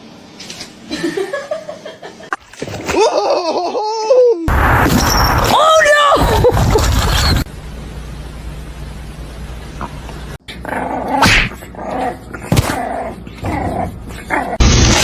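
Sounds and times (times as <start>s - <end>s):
low steady hum: 6.8s - 10.6s.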